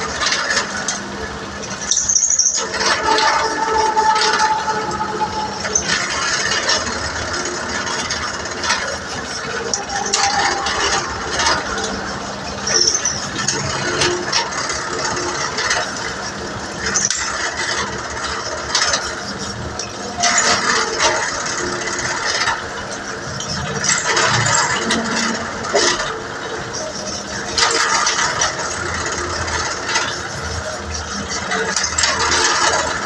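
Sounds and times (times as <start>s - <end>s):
high squeaks: 1.7s - 15.9s.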